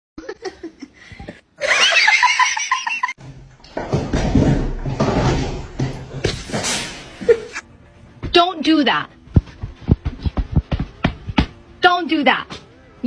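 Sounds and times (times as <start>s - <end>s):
person laughing: 1.6s - 3.2s, 7.2s - 7.6s.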